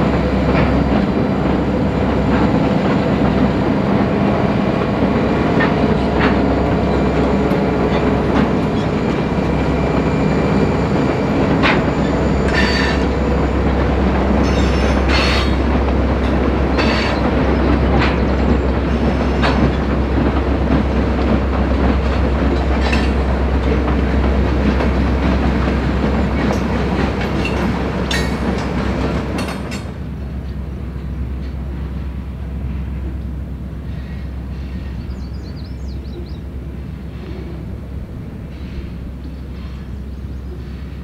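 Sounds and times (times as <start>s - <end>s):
wheels clacking over rail joints: 0.0s - 31.7s
train rumble: 0.0s - 41.0s.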